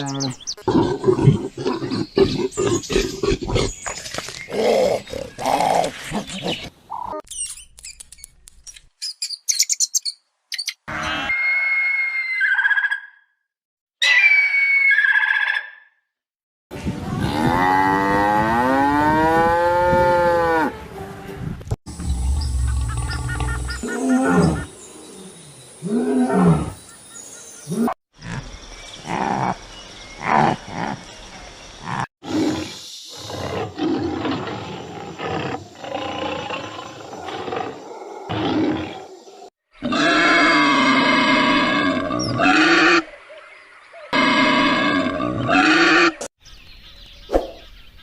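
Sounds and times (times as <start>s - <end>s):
animal roars: 21.9s - 24.7s, 31.9s - 43.0s.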